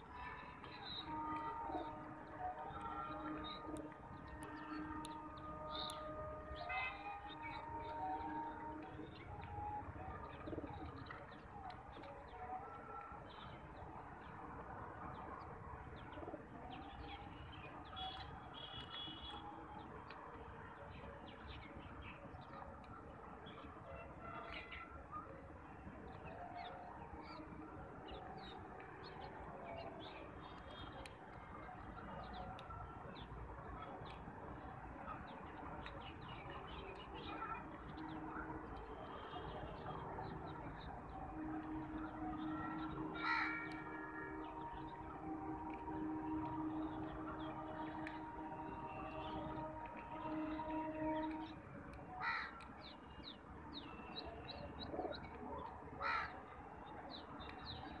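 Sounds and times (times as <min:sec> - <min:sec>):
birds chirping: 0:35.5 - 0:51.6.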